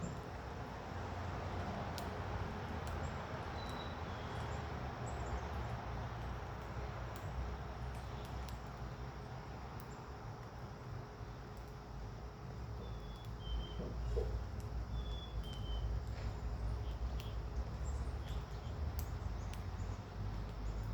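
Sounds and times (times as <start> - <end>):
outdoor background hiss: 0.0 - 20.9
light ticks: 1.9 - 8.9, 9.7 - 11.8, 13.1 - 13.4, 15.4 - 20.9
small birds chirping: 2.9 - 5.9, 7.9 - 10.2, 12.7 - 20.9.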